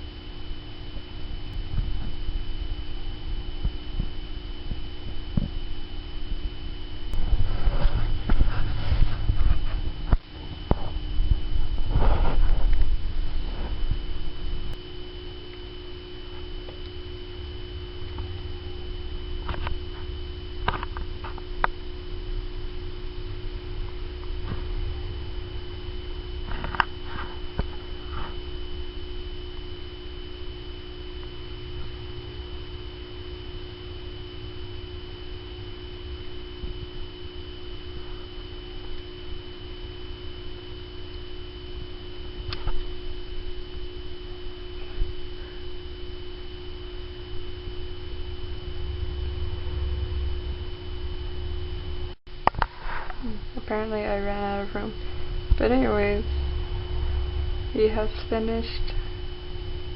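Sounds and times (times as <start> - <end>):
electrical hum with whine: 0.0 - 59.9
low rumble: 1.4 - 15.4, 46.7 - 59.9.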